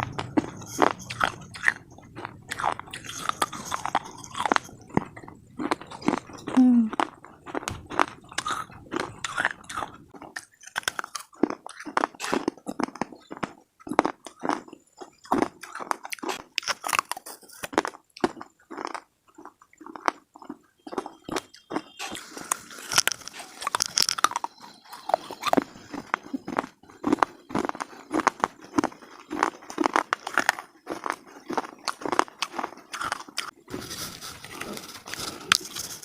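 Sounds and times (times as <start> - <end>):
slate being chewed crunching: 0.0 - 36.0.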